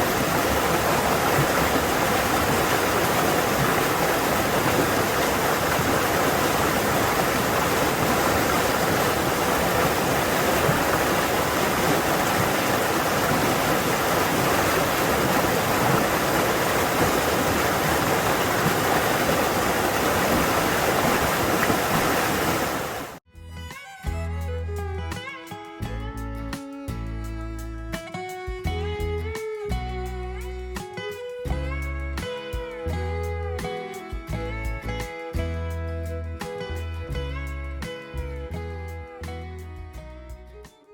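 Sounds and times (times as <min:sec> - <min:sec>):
stream water rushing: 0:00.0 - 0:23.2.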